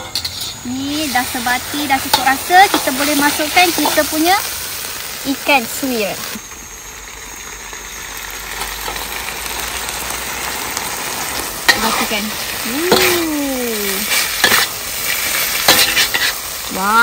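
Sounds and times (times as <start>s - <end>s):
spatula scraping a wok: 0.0s - 4.8s, 10.4s - 13.3s, 13.9s - 16.7s
fish sizzling in hot sambal: 0.0s - 17.0s.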